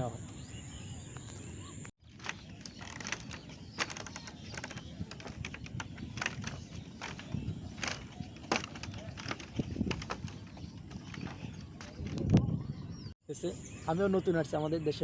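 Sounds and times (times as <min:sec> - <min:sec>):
light clicks and knocks: 0:02.1 - 0:12.5.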